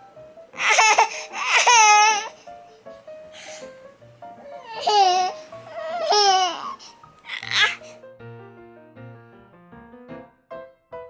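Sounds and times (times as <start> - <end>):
soft background music: 0.0 - 11.0
baby squealing: 0.6 - 2.4, 4.4 - 7.9.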